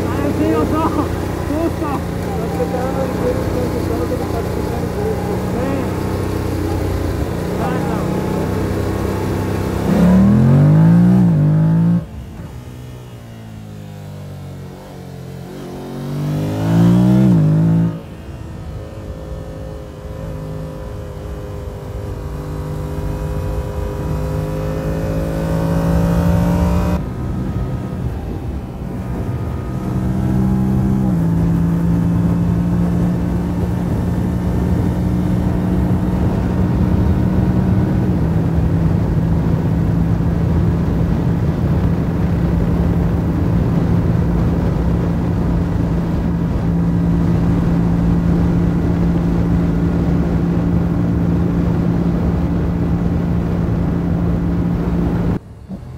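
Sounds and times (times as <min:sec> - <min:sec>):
motorcycle engine accelerating: 0:00.0 - 0:55.9
wind rush: 0:25.5 - 0:55.5.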